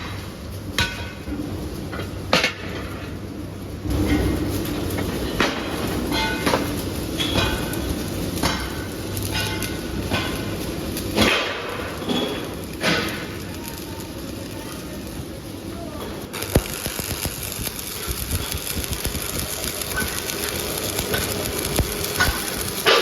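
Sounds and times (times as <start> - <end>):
low machine hum: 0.0 - 23.0
metal clanking on metal: 5.4 - 13.4.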